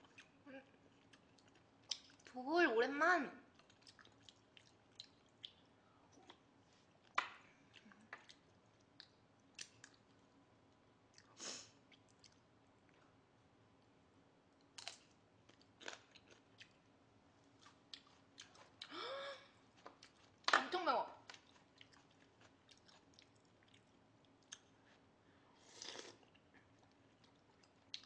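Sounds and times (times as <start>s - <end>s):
chewing and mouth sounds: 0.0s - 2.4s, 3.5s - 10.2s, 11.1s - 13.2s, 14.6s - 16.9s, 17.5s - 19.0s, 19.7s - 20.5s, 21.2s - 25.0s, 25.7s - 28.0s.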